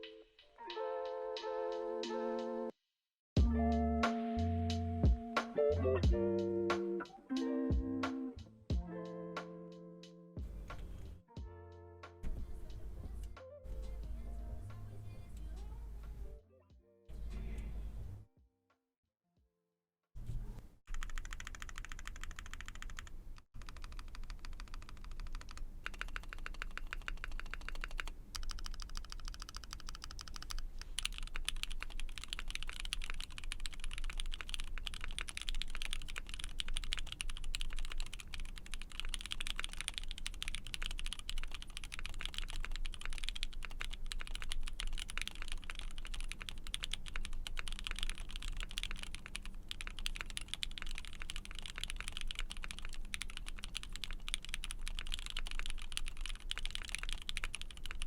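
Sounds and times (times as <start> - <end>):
typing on mechanical keyboard: 20.9 - 58.0.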